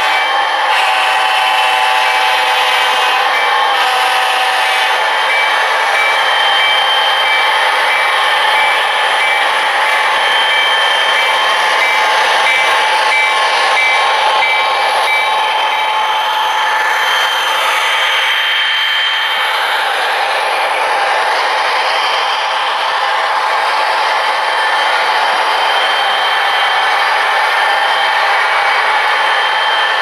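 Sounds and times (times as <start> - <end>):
model train whir and rolling: 0.0 - 30.0.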